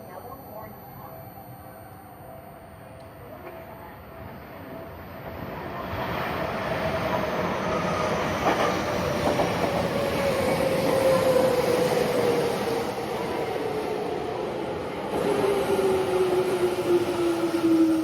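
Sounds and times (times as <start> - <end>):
train whine: 0.0 - 18.0
train wheel click on rails: 8.4 - 10.0.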